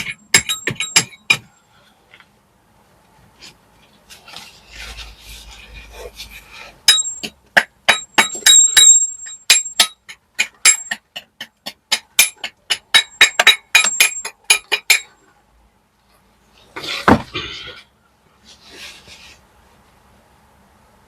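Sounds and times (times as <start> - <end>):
hammer striking steel chisel: 0.0 - 1.5, 6.9 - 15.1.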